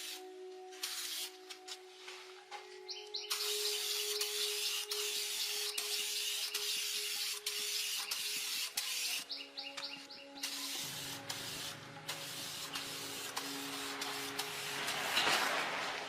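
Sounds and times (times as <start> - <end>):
compressed air hissing: 0.0 - 1.4, 3.3 - 9.4, 10.3 - 15.1
birds chirping: 2.7 - 4.6, 8.0 - 11.8.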